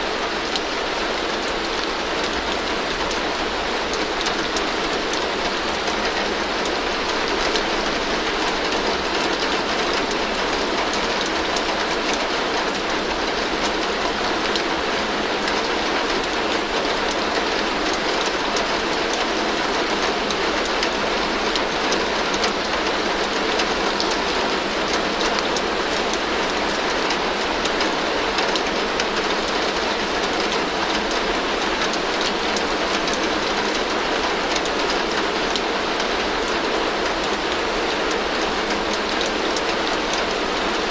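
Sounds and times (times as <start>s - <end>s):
heavy rain on a tin roof: 0.0s - 40.9s.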